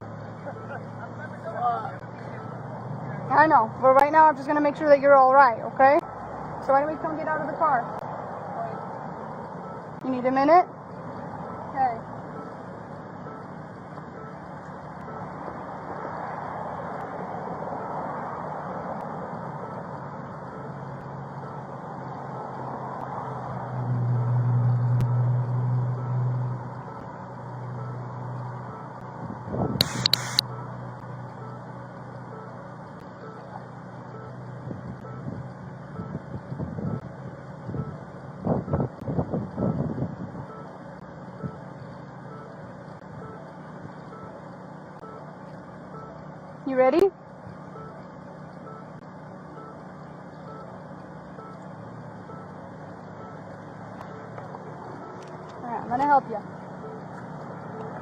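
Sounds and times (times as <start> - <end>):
vehicle engine humming: 0.0 - 58.0
faint short electronic beep: 11.5 - 12.6, 13.2 - 13.5, 15.0 - 16.2, 29.8 - 31.7, 33.2 - 34.4, 56.8 - 58.0
sharp crackling bursts: 29.8 - 30.4.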